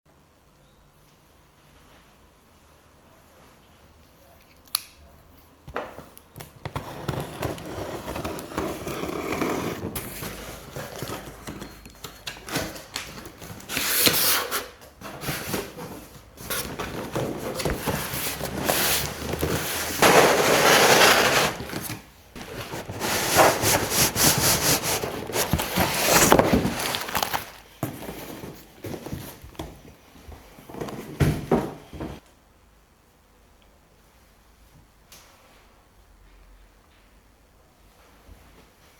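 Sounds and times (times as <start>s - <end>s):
cardboard package rustling: 6.5s - 29.8s.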